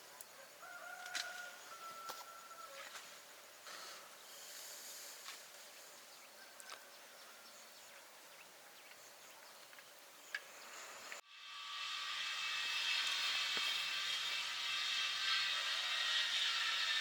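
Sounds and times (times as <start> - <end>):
loud steady hiss: 3.2 - 6.0, 10.4 - 17.0
insects hissing: 3.3 - 6.0.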